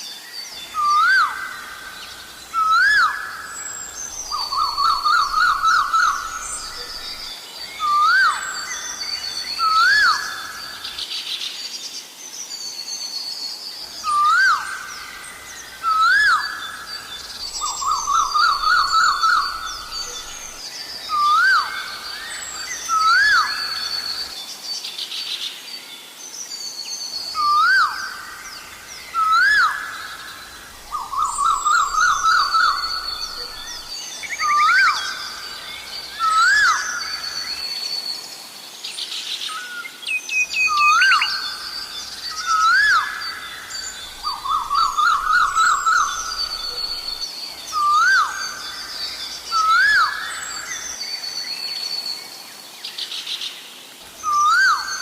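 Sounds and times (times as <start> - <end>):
small birds chirping: 0.0 - 11.7, 12.4 - 55.0
koel whistled calls: 36.2 - 37.6, 42.2 - 50.6.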